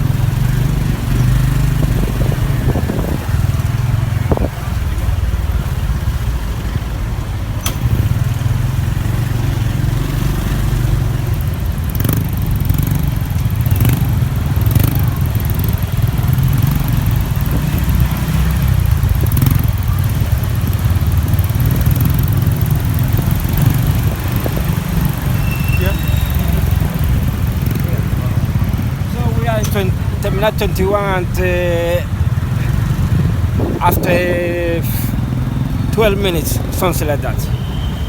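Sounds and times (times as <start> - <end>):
motorcycle running: 0.0 - 38.0
wind rumble on microphone: 0.8 - 6.1, 21.6 - 25.4, 32.9 - 34.8.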